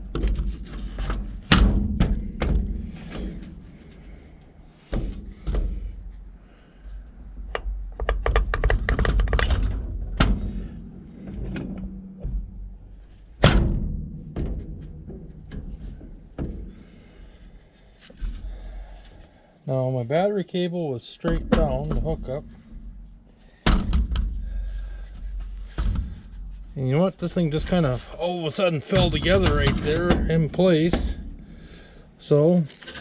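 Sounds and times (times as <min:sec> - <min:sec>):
metal parts knocking and clunking: 0:07.4 - 0:17.4, 0:21.2 - 0:26.7, 0:27.5 - 0:31.4, 0:32.6 - 0:33.0.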